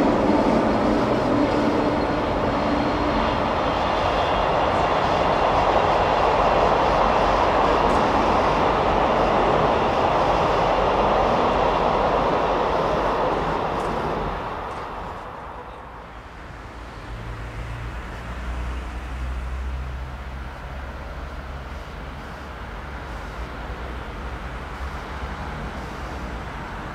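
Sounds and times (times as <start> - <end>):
train wheels rumbling on rails: 0.0 - 26.9.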